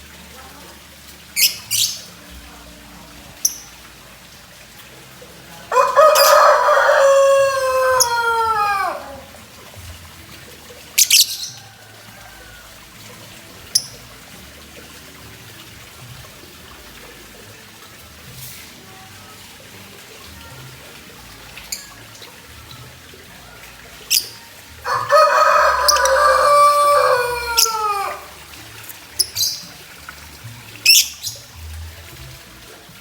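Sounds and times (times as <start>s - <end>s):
rooster crowing: 5.7s - 9.4s, 24.8s - 28.4s.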